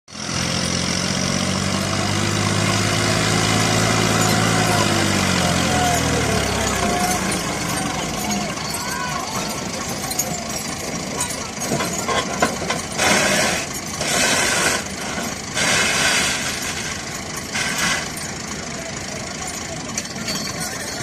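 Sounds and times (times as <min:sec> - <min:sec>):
tractor diesel engines running: 0:00.1 - 0:21.0
loud bursts of noise: 0:12.8 - 0:18.4.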